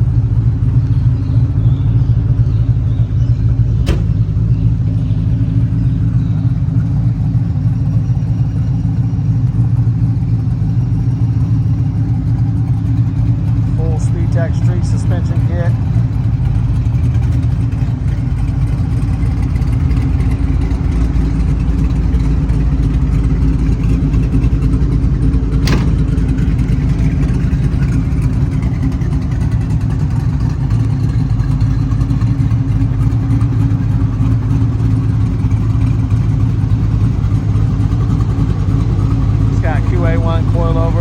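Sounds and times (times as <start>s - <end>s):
car engine idling: 0.0s - 41.0s
sharp click: 3.8s - 4.2s.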